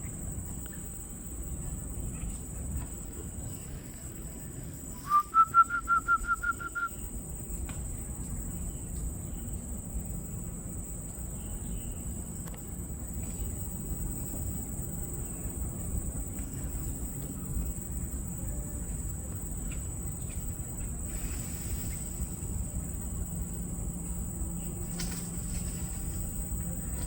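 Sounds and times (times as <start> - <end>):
rapid whistled notes: 5.0 - 7.0.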